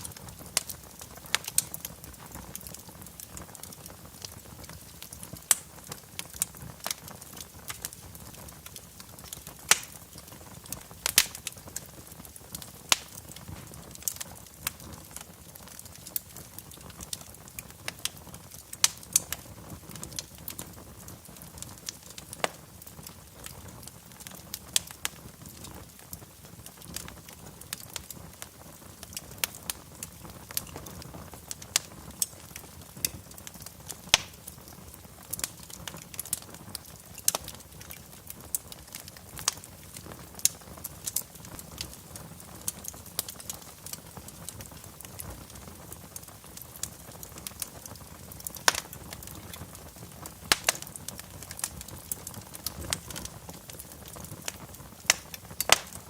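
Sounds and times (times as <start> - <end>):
wood fire crackling: 0.0 - 56.0
low rush of flame: 46.7 - 56.0.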